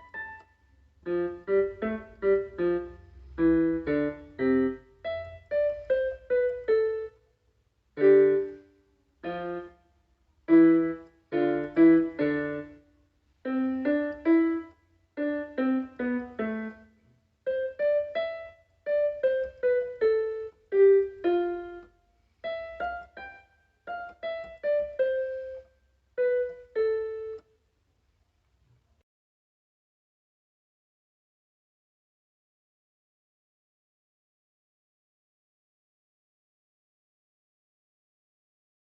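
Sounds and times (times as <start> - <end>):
slow piano melody: 0.0 - 27.6.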